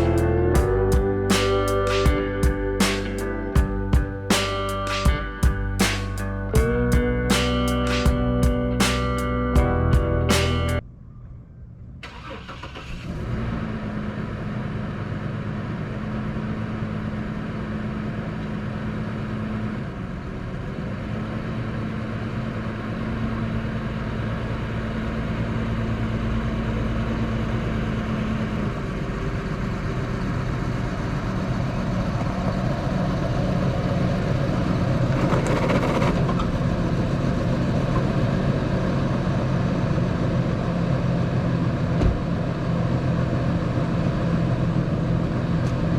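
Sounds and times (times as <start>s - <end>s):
vehicle engine and road noise: 12.0s - 45.9s.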